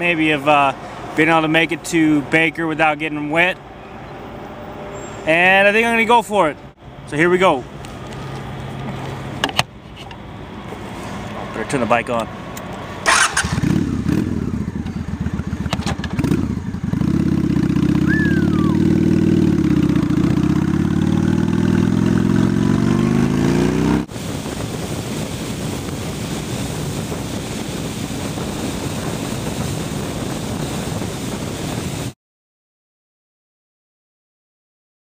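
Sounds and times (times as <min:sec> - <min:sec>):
motorcycle engine revving: 0:13.0 - 0:24.9
wind noise: 0:17.9 - 0:32.2.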